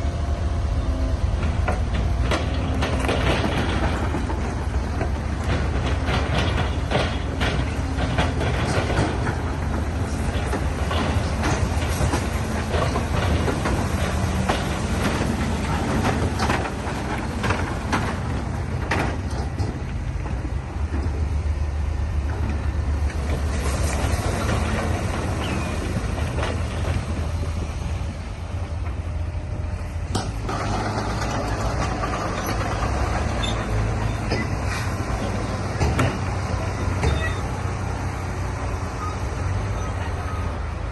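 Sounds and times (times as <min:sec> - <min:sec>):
diesel machinery running under load: 0:00.0 - 0:40.9
metallic clanks and knocks: 0:01.4 - 0:21.3, 0:30.1 - 0:37.6.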